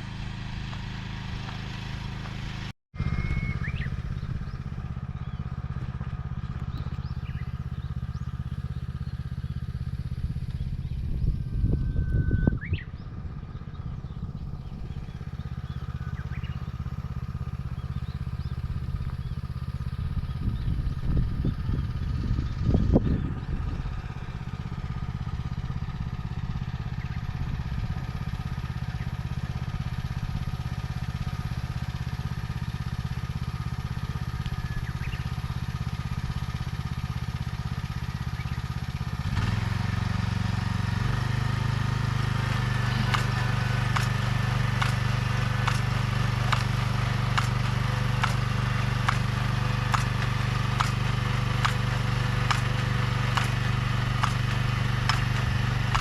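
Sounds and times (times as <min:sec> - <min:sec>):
transplanter engine running: 0:00.0 - 0:56.0.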